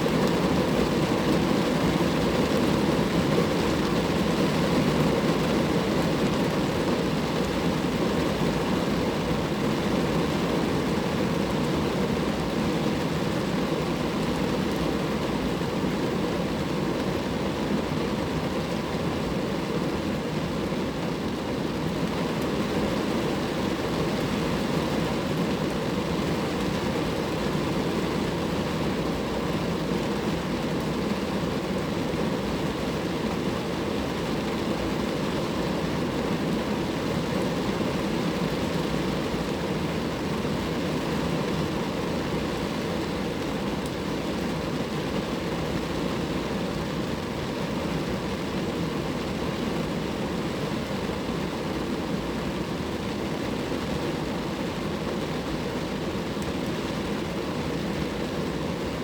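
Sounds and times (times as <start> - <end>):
rain falling on a car: 0.0 - 59.0.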